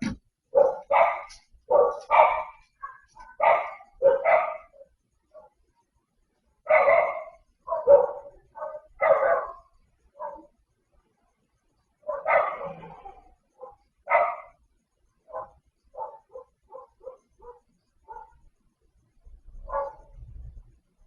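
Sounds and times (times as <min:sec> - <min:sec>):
dog barking: 0:00.5 - 0:05.6, 0:06.6 - 0:10.5, 0:12.0 - 0:14.6, 0:15.2 - 0:18.4, 0:19.6 - 0:20.2.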